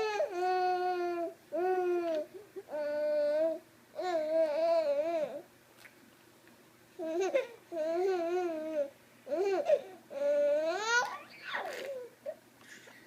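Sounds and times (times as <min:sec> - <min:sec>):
baby vocalizing: 0:09.4 - 0:12.2.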